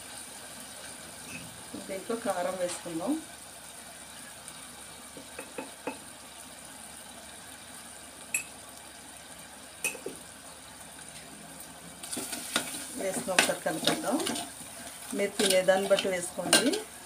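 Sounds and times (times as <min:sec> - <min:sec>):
prawns sizzling in a pot: 0:00.0 - 0:17.0
metal utensils clinking on pot: 0:12.0 - 0:14.5, 0:15.2 - 0:16.9.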